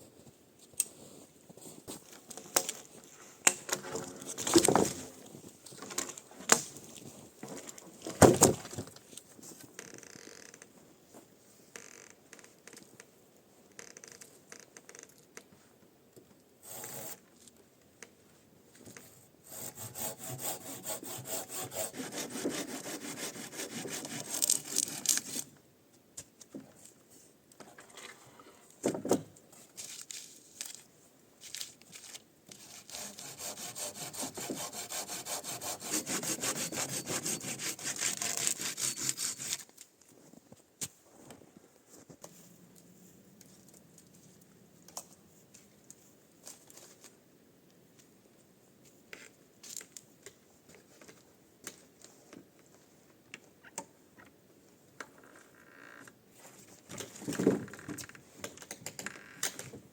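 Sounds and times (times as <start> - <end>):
hand saw cutting wood: 16.6 - 17.2, 19.4 - 25.4, 32.6 - 39.7.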